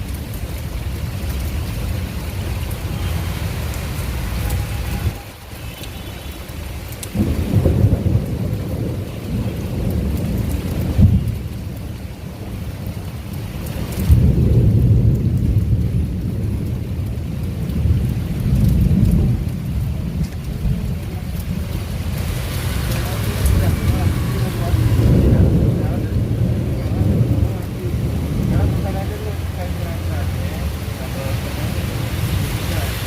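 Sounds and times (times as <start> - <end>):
heavy rain: 0.0 - 33.0
thunder rumbling: 0.0 - 33.0.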